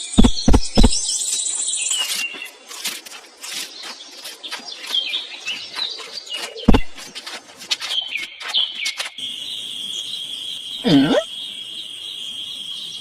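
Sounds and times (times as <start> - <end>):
loud thump: 0.2 - 0.9, 6.7 - 6.9.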